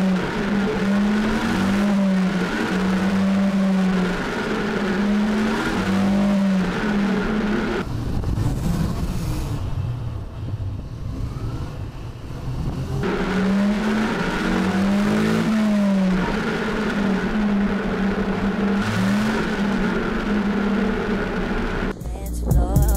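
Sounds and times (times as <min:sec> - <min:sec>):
motorcycle engine running: 0:00.0 - 0:22.9
wind noise: 0:07.8 - 0:13.1.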